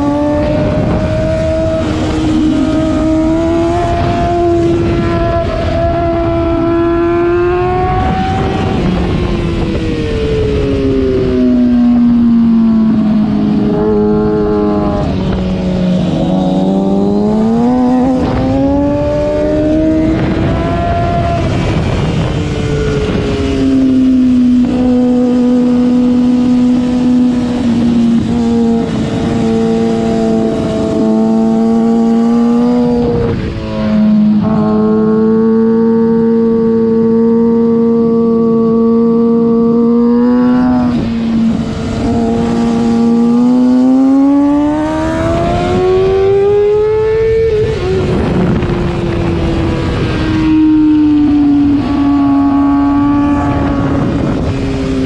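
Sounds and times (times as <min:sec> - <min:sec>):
motorcycle engine revving: 0:00.0 - 0:55.0
wind noise on microphone: 0:00.0 - 0:55.0.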